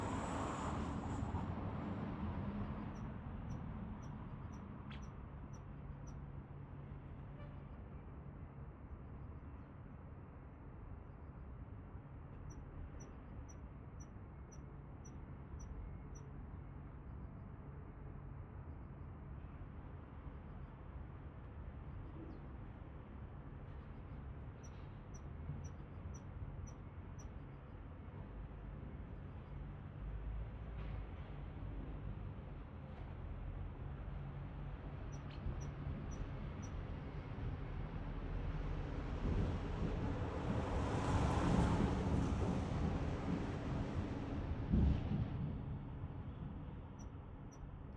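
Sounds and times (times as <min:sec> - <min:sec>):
faint high-pitched ticks: 0:02.9 - 0:06.2.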